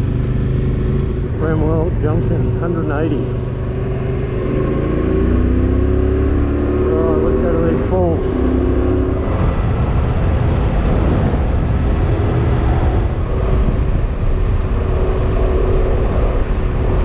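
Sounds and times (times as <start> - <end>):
motorcycle engine: 0.0 - 17.0
wind and road noise: 0.0 - 17.0.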